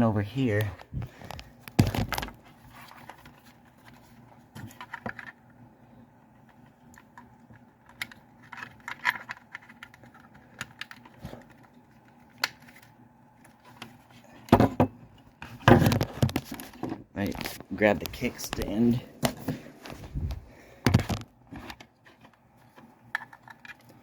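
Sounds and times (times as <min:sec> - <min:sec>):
plastic clicks and rattles: 0:06.9 - 0:12.8
plastic clatter: 0:13.8 - 0:20.0.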